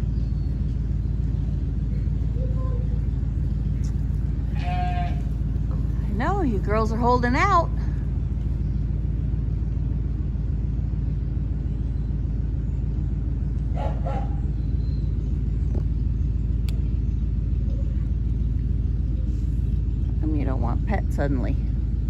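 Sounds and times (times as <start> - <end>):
low rumble: 0.0 - 22.0
animal call: 2.3 - 3.2, 3.8 - 5.4, 13.8 - 15.0
click: 16.6 - 16.8.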